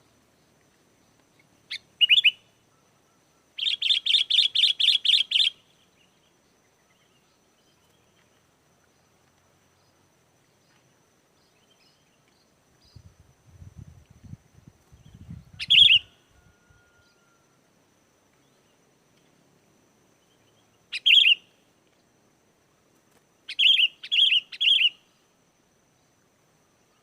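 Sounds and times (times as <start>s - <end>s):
bulbul calling: 1.4s - 2.5s, 3.6s - 5.6s, 15.2s - 16.8s, 20.9s - 21.5s, 23.5s - 25.0s.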